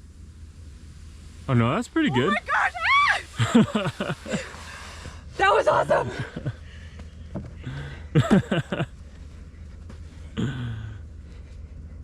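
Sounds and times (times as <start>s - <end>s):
steady low rumble: 0.0s - 12.0s
excited voice exclamations: 2.1s - 3.3s.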